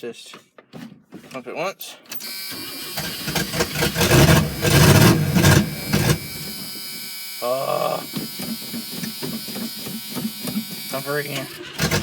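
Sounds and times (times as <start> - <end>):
starter cranking engine: 2.2 - 12.0
rising whine: 3.3 - 7.6.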